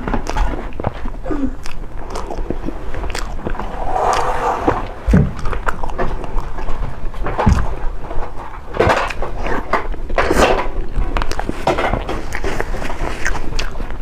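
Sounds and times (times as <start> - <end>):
cake being chewed: 10.3 - 14.0.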